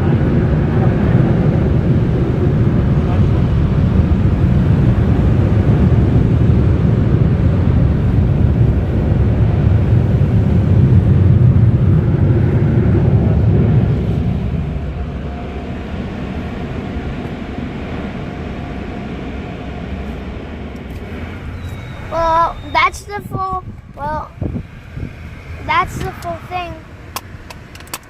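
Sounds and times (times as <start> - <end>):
car wash dryer blowers: 0.0 - 28.0.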